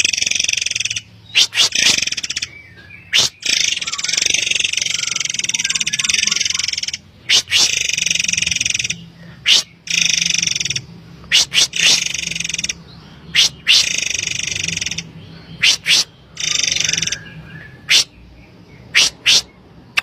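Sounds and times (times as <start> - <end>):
bird harsh rattling buzzes: 0.0 - 2.5, 3.1 - 12.8, 13.4 - 17.2
bird sharp high notes: 3.1 - 7.9.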